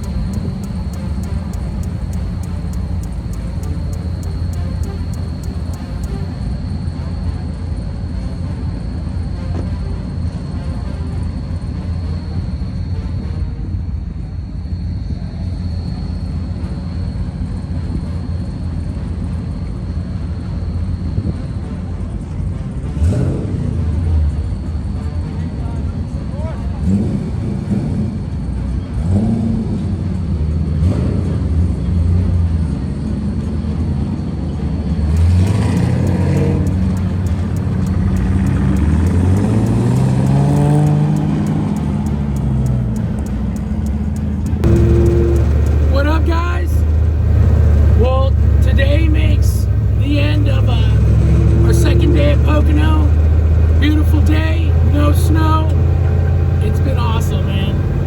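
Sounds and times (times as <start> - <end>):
car engine revving: 0.0 - 6.6, 26.7 - 33.9, 34.7 - 58.0
vehicle cruising drone: 0.0 - 58.0.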